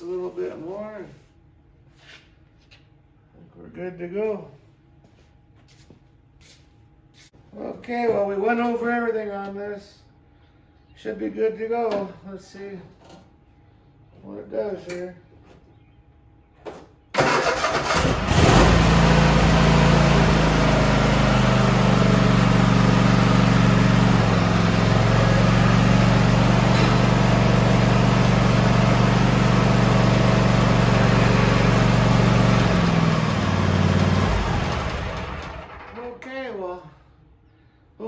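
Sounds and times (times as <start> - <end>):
electric starter cranking: 17.2 - 36.0
mower engine running: 17.2 - 36.0.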